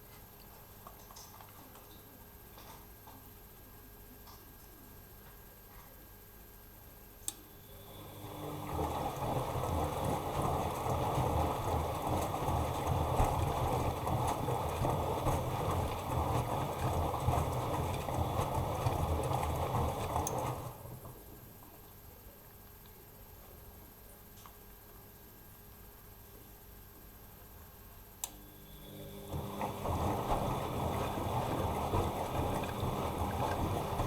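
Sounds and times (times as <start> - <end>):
washing machine drum churning: 7.9 - 21.2, 28.9 - 34.0.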